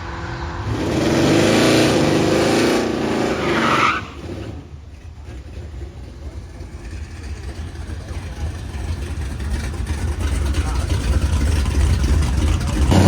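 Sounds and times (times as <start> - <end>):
car engine accelerating hard: 0.0 - 13.0
tire squeal: 0.0 - 13.0
low engine rumble: 4.2 - 13.0.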